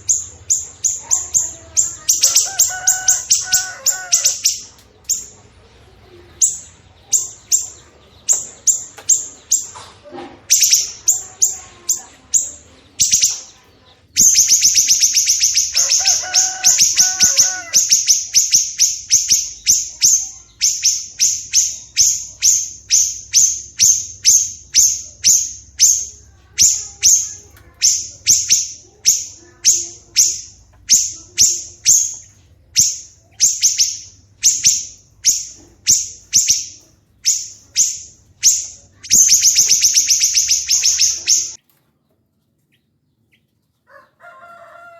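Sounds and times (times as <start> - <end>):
songbird chipping calls: 0.0 - 5.4, 6.4 - 9.8, 10.4 - 41.6
low warbling bird call: 14.2 - 41.6.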